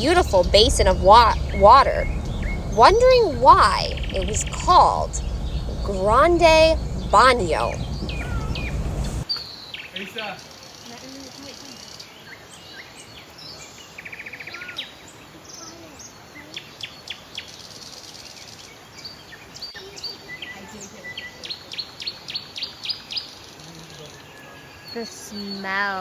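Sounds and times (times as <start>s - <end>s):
rattling bird trill: 0.0s - 9.2s
birds chirping: 0.0s - 10.1s
background hiss: 0.0s - 12.1s.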